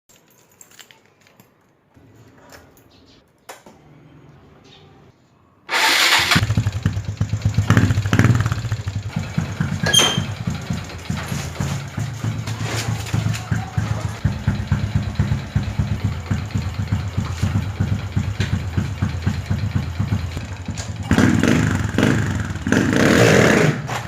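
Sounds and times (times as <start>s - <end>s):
motorcycle engine starting and idling: 5.7s - 24.0s.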